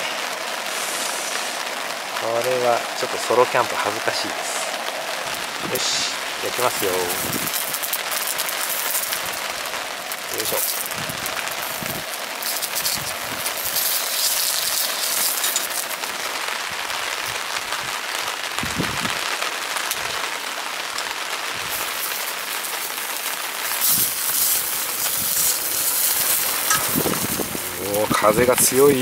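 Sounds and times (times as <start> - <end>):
rain falling: 0.0 - 29.0
sausages sizzling in a frying pan: 0.0 - 29.0
wind thumps on microphone: 6.8 - 7.6, 10.9 - 12.0, 18.6 - 19.2, 26.2 - 29.0.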